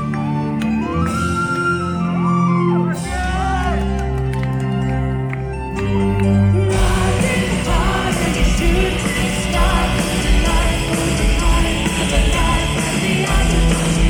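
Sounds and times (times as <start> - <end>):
live metal band playing: 2.7 - 4.7, 5.8 - 14.0
person singing: 6.7 - 14.0.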